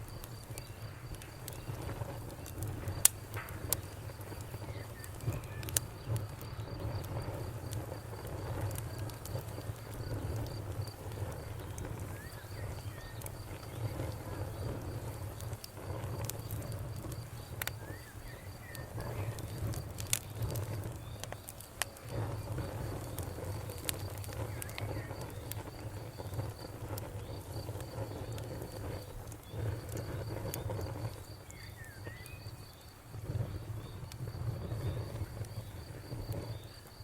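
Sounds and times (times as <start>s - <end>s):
sharp pops: 0.0s - 14.2s
cricket chirping: 0.0s - 37.0s
wood fire crackling: 0.0s - 37.0s.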